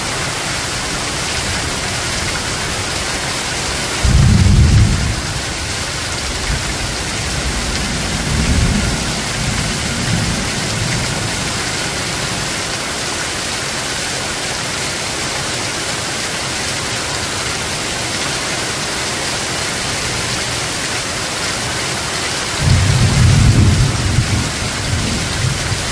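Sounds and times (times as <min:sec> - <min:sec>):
steady rain hiss: 0:00.0 - 0:25.9
thunder rumbling: 0:04.0 - 0:12.5, 0:22.6 - 0:25.9.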